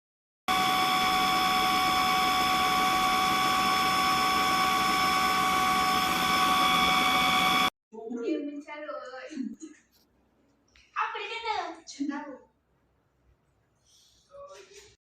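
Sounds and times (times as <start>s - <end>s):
vacuum mop motor whine: 0.5s - 7.7s.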